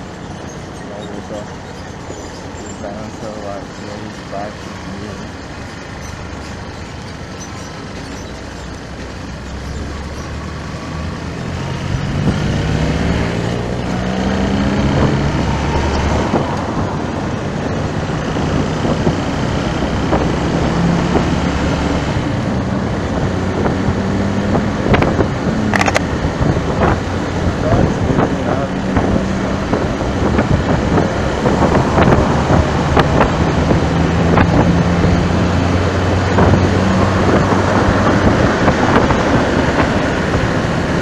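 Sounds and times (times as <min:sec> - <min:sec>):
road noise: 0:00.0 - 0:41.0
vehicle engine accelerating: 0:00.0 - 0:41.0.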